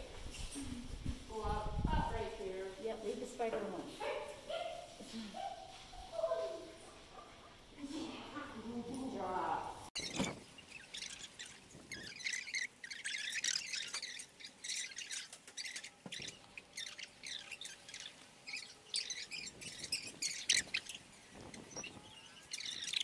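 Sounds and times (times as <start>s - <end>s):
small birds chirping: 0.2s - 23.0s.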